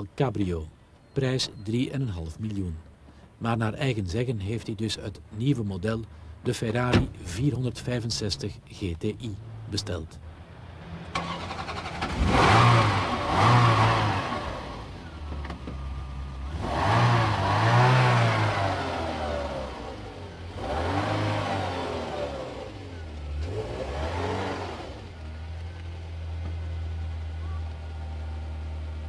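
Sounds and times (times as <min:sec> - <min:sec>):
car engine revving over idle: 0:10.4 - 0:29.0.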